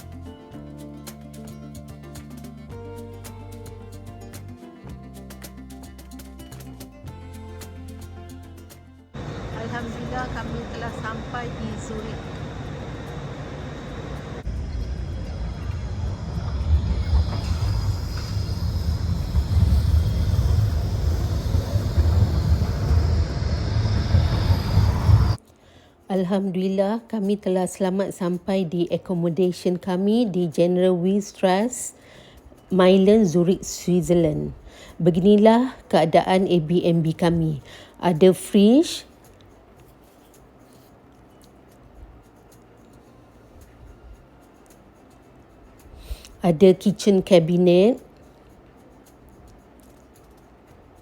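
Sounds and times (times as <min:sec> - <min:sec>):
moving vehicle rumble: 0:09.2 - 0:25.4
small ticks: 0:39.1 - 0:46.4, 0:48.0 - 0:51.0.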